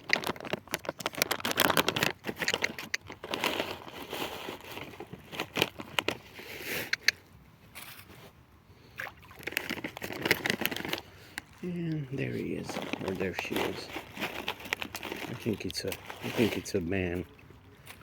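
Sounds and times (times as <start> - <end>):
bag crinkling: 0.0 - 7.1, 9.2 - 17.2.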